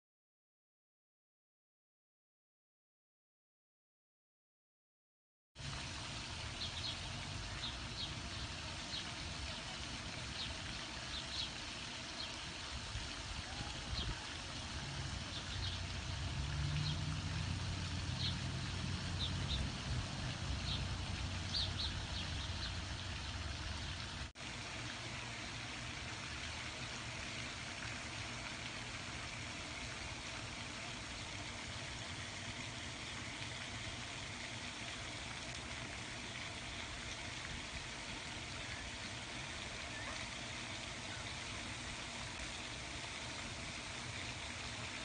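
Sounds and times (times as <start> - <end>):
steady low rumble: 14.6 - 24.3.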